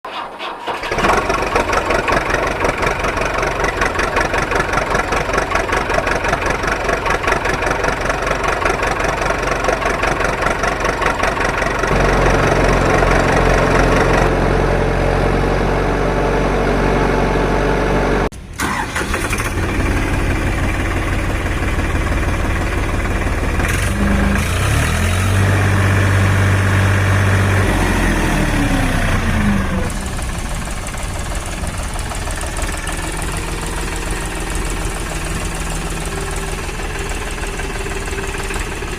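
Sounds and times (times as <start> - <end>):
heavy vehicle engine chugging: 0.8 - 18.8, 19.4 - 38.9.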